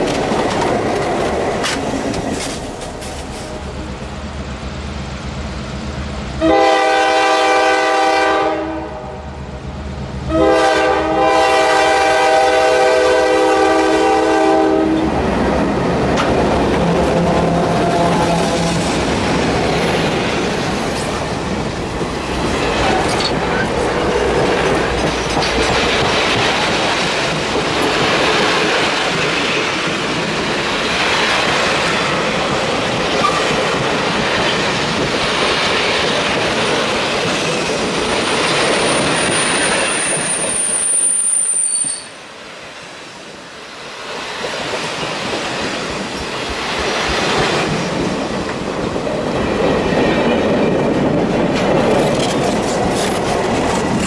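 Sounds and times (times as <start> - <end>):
train wheels on rails: 0.0 - 54.0
high wheel squeal: 38.7 - 42.2.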